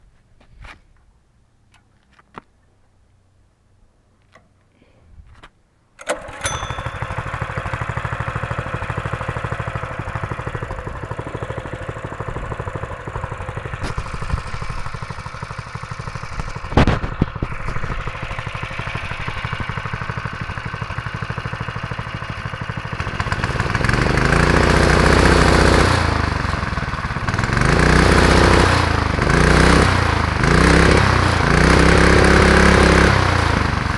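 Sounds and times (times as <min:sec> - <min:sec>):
go-kart engine idling and revving: 0:06.2 - 0:33.9.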